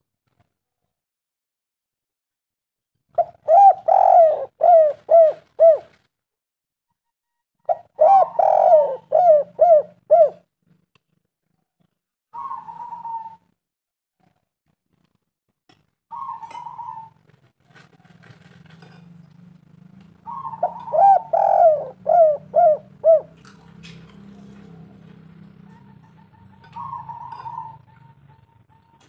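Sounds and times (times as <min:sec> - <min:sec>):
dove cooing: 0:03.2 - 0:06.0, 0:07.6 - 0:10.5, 0:12.4 - 0:13.4, 0:16.1 - 0:19.0, 0:20.1 - 0:29.0.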